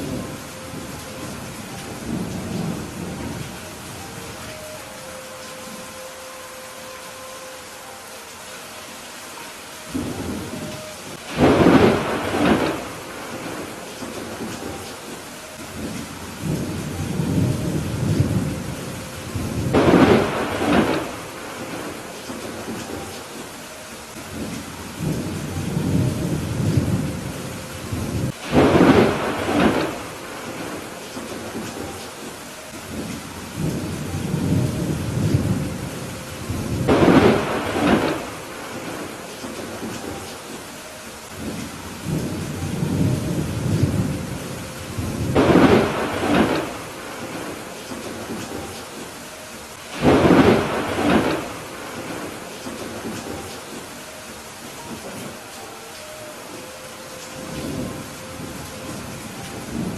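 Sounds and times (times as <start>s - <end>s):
low rolling thunder rumble: 0.0s - 5.0s, 9.9s - 23.6s, 24.2s - 40.7s, 41.3s - 49.2s, 49.8s - 54.0s, 57.4s - 59.9s
steady rain: 0.0s - 59.9s
thunder claps: 9.9s - 23.4s, 24.3s - 32.1s, 32.9s - 40.7s, 41.3s - 49.2s, 49.9s - 53.9s.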